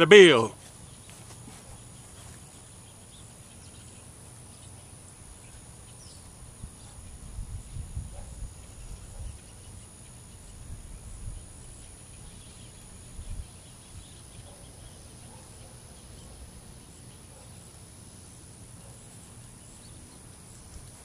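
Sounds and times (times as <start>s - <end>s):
faint bird chirps: 0.0s - 17.7s
high insect drone: 0.0s - 21.0s
wind on microphone: 6.6s - 9.6s, 10.4s - 11.8s, 13.1s - 13.6s.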